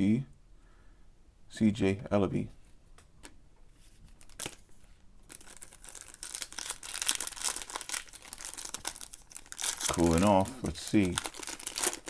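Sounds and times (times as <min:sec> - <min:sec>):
wrapper crinkling and tearing: 0:04.1 - 0:12.0.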